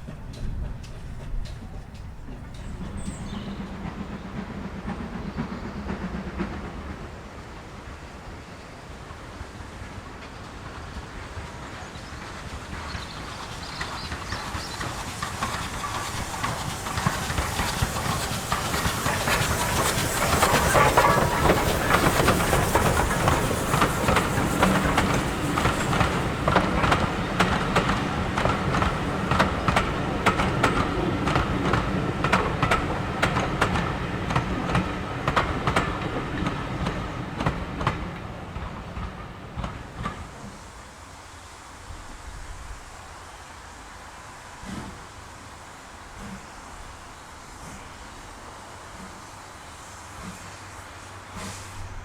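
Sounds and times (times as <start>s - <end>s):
steam train passing: 0.0s - 52.0s
wheels clicking over rail joints: 10.1s - 40.6s.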